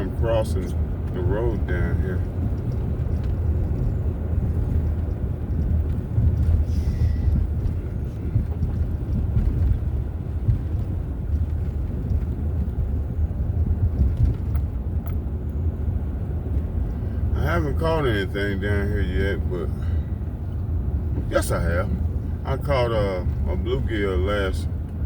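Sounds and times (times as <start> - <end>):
road noise: 0.0 - 25.0
van engine rumble: 0.0 - 25.0.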